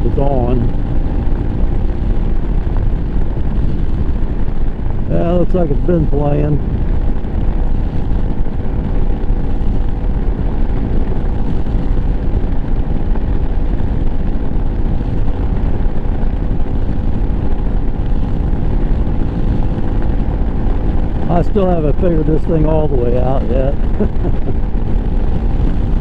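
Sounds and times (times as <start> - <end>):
motorcycle engine cruising: 0.0 - 26.0.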